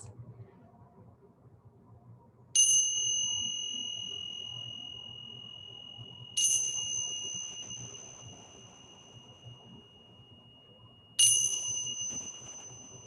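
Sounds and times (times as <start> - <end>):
small high-pitched bell ringing: 2.6 - 13.0.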